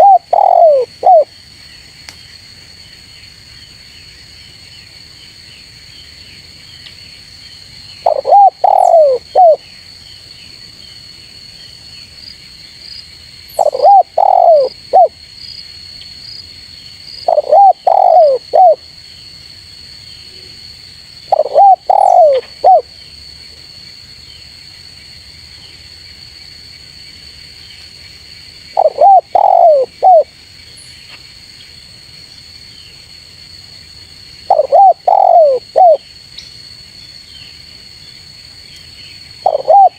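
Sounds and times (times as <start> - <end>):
dove cooing: 0.0 - 1.3, 8.0 - 9.6, 13.6 - 15.1, 17.2 - 18.8, 21.3 - 22.9, 28.8 - 30.3, 34.5 - 36.0, 39.4 - 39.9
high insect drone: 0.0 - 39.9.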